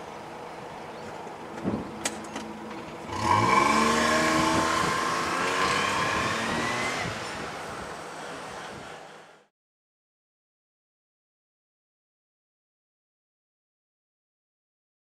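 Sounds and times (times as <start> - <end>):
small car engine revving: 3.0 - 9.4.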